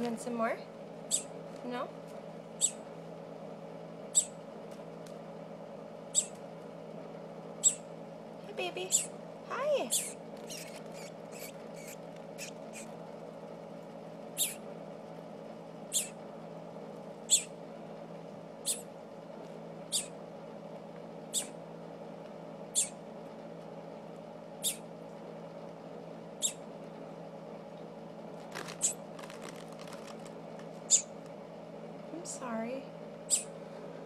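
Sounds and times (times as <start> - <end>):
steady low hum: 0.0 - 34.0
baby bird peeping: 1.0 - 1.4, 2.5 - 2.9, 4.1 - 4.4, 6.0 - 6.4, 7.6 - 8.0, 8.8 - 13.0, 14.3 - 14.7, 15.8 - 16.2, 17.2 - 17.6, 18.6 - 19.0, 19.8 - 20.3, 21.2 - 21.6, 22.7 - 23.1, 24.5 - 24.9, 26.4 - 26.7, 28.5 - 31.2, 33.2 - 33.6.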